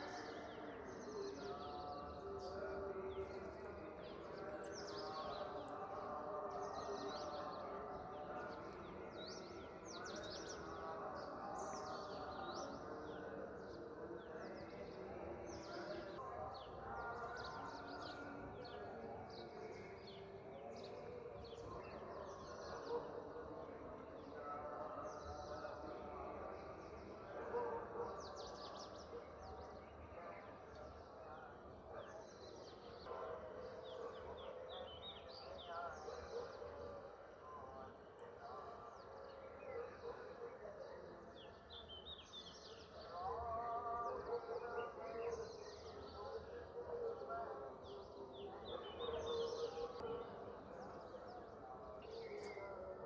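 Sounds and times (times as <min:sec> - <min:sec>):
faint voice: 0:00.0 - 0:53.0.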